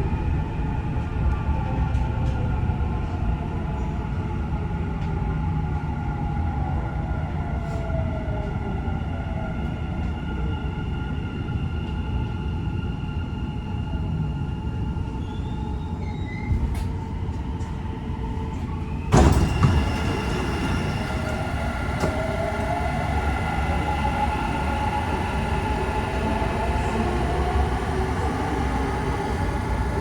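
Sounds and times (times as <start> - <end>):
train rumble and hum: 0.0 - 30.0
faint rising squeal: 18.9 - 30.0
sliding doors opening rush: 19.1 - 30.0.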